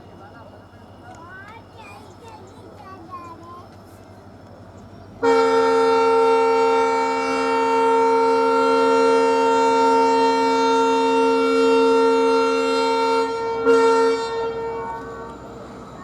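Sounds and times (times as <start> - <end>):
locomotive air horn blast: 5.2 - 15.9.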